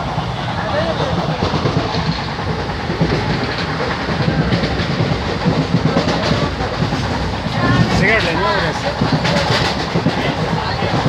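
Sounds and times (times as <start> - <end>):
train rumbling and rattling: 0.0 - 11.0.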